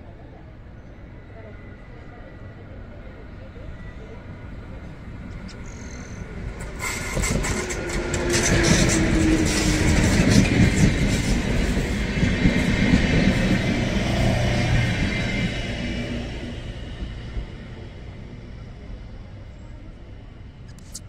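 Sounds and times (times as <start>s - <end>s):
train wheels rumbling and rattling: 5.2s - 18.8s
wheels clicking over rails: 6.6s - 13.6s.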